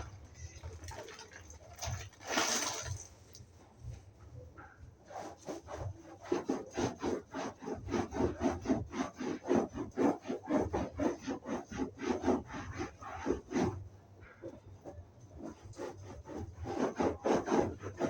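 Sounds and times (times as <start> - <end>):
scratchy rubbing on upholstery: 5.0 - 18.0.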